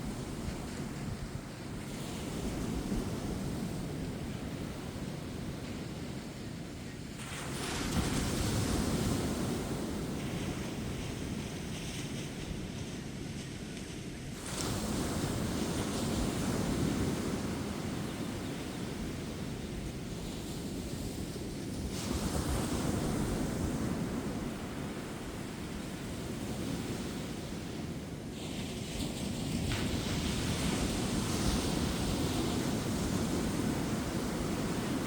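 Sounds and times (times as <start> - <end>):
ocean surf breaking: 14.3 - 35.0.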